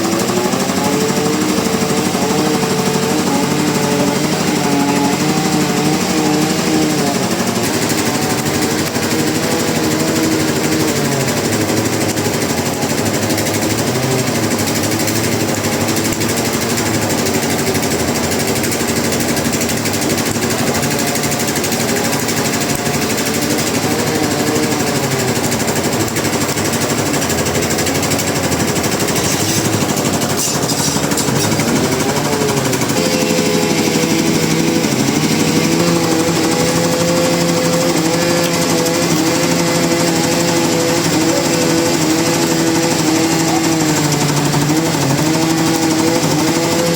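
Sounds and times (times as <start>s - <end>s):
sawmill machinery rattling: 0.0s - 46.9s.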